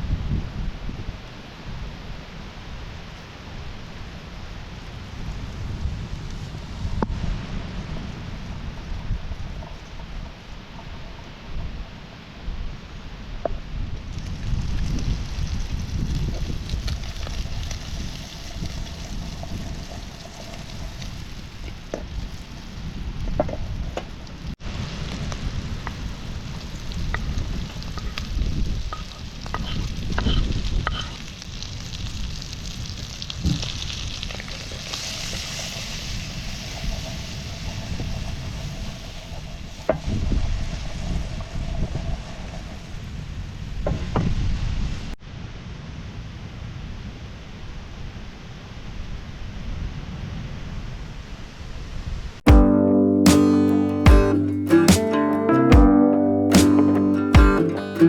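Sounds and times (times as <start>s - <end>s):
wind rumble on microphone: 0.0s - 35.0s, 35.8s - 52.4s
food sizzling in a pan: 15.3s - 23.8s, 25.6s - 43.3s
utensil scraping a pan: 28.9s - 31.3s.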